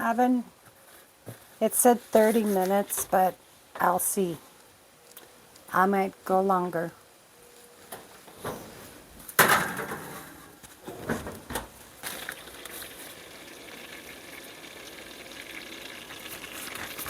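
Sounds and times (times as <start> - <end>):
oil sizzling in a frying pan: 12.4 - 17.0.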